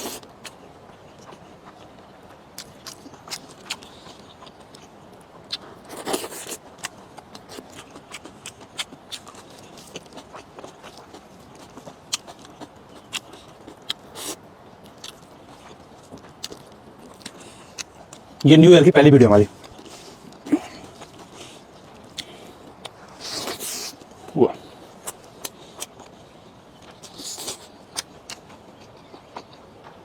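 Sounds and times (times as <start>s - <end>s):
crisp biting and chewing: 2.6s - 4.9s, 5.5s - 18.2s, 26.8s - 29.6s.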